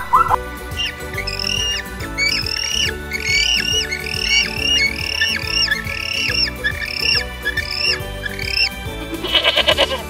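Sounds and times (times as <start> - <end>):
background music: 0.0 - 10.0
penguins calling: 0.0 - 10.0.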